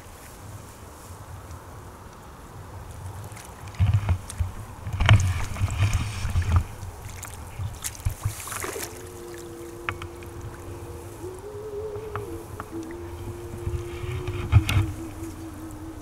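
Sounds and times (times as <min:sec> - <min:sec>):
fish splashing at the surface: 0:05.1 - 0:10.7
background music held notes: 0:09.0 - 0:16.0.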